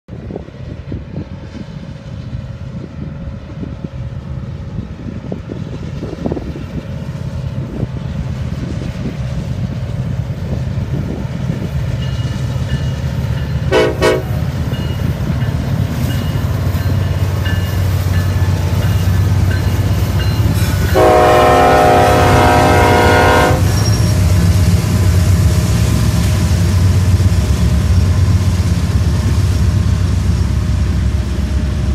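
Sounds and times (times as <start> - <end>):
diesel locomotive engine rumble: 0.1 - 31.9
train air horn blasts: 13.7 - 14.5, 20.7 - 24.0.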